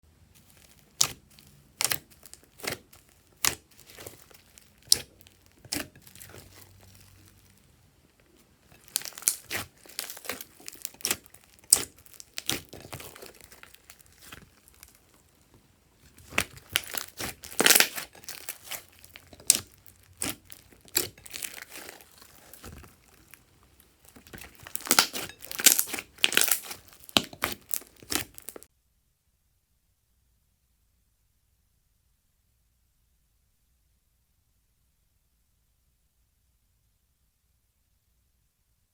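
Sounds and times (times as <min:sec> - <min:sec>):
slime crinkling and crackling: 0:00.3 - 0:28.7.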